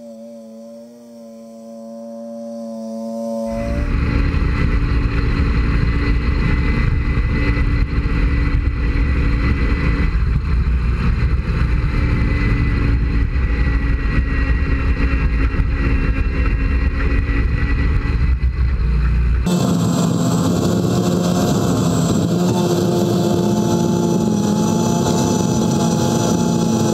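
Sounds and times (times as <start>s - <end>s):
lawn tractor engine running: 3.5s - 26.9s.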